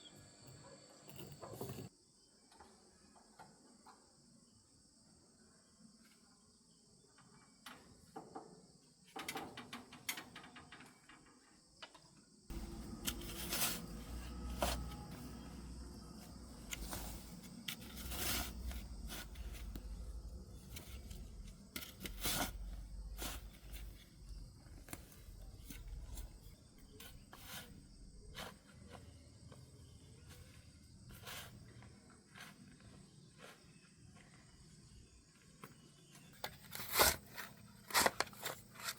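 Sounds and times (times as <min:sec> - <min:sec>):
insects buzzing: 0:11.7 - 0:37.7.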